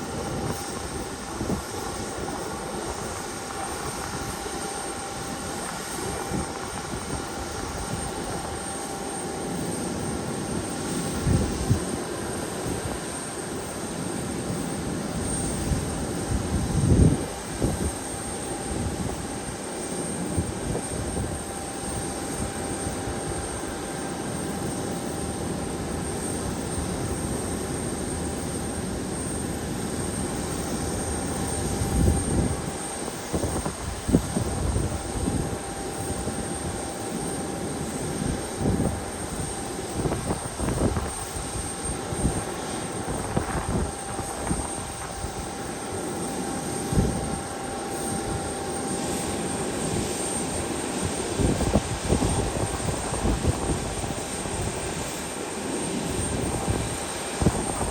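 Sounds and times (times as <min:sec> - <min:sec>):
wind buffeting microphone: 0:00.0 - 0:08.6, 0:15.6 - 0:18.1, 0:31.5 - 0:36.8, 0:38.0 - 0:45.8, 0:46.7 - 0:57.9
airliner engines roaring: 0:00.0 - 0:57.9
faint steady whine: 0:00.0 - 0:57.9.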